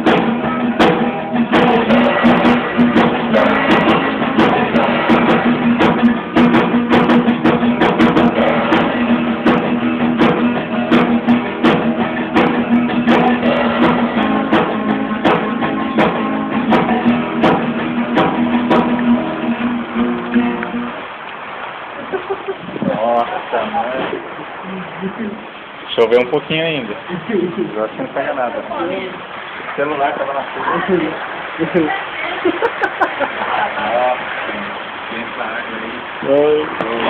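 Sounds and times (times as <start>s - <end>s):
sharp percussive hits: 0.0s - 20.9s
strummed guitar: 0.0s - 21.1s.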